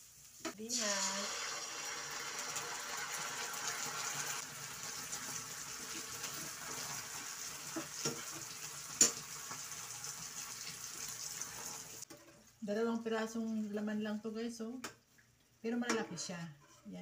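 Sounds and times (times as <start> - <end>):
fish sizzling in frying pan: 0.0 - 12.1.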